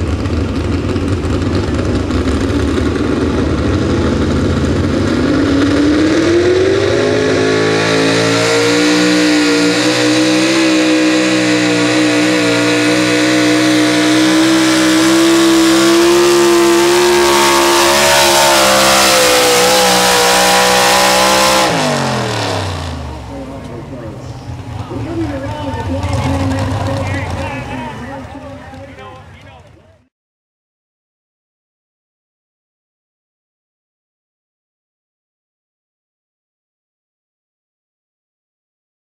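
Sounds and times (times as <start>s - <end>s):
truck engine under full load: 0.0s - 30.1s.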